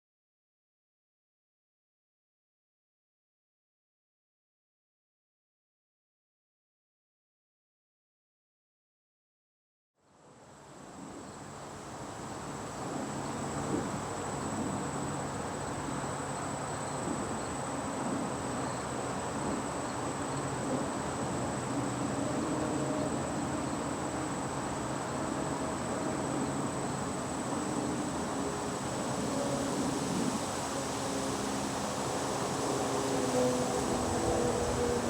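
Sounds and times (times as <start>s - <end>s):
insects buzzing: 11.2s - 35.0s.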